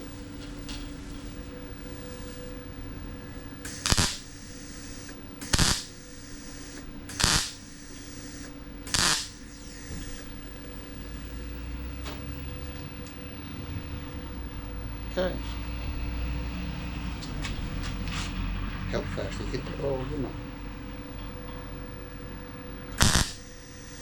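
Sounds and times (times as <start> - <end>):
steady low hum: 0.0 - 17.8, 18.6 - 24.0
welder tack welds: 3.6 - 10.3, 23.0 - 24.0.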